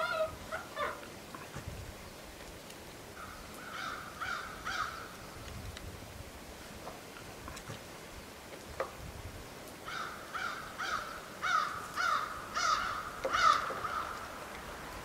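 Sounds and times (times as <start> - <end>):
bird calling: 0.0 - 1.1, 3.1 - 5.4, 9.8 - 14.4.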